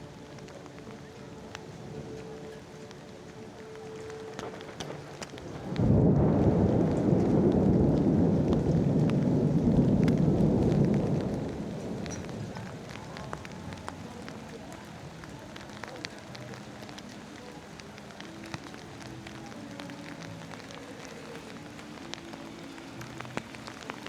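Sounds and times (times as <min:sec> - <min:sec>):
raindrops ticking close by: 0:00.0 - 0:24.0
steady rain: 0:00.0 - 0:24.0
thunder rumble: 0:04.2 - 0:22.4.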